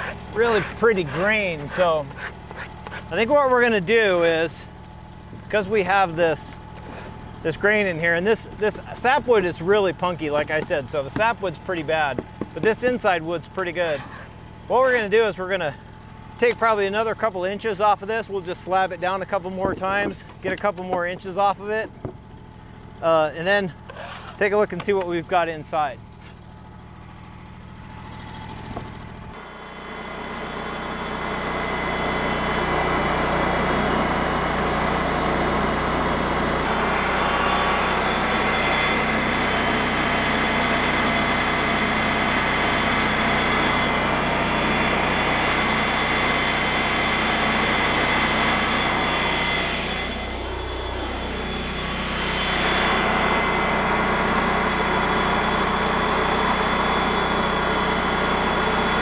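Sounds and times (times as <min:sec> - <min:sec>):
band blade cutting log: 0:00.0 - 0:03.3, 0:06.7 - 0:07.2, 0:10.4 - 0:15.3, 0:23.9 - 0:24.5
band sawmill engine running: 0:00.0 - 0:59.0.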